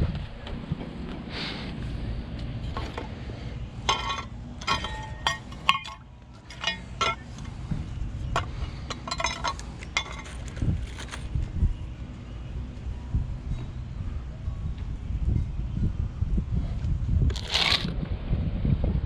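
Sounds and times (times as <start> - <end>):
low rumble: 0.0 - 5.6, 6.3 - 19.0
metal hardware clinking: 3.8 - 7.5, 8.3 - 11.3.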